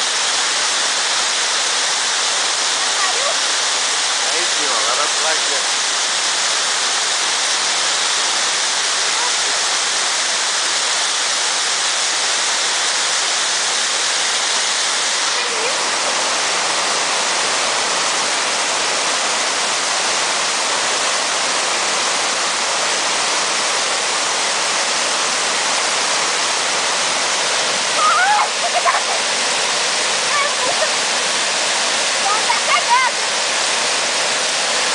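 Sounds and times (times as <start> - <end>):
waterfall pouring over rock: 0.0 - 34.9
person raising voice: 28.0 - 29.2.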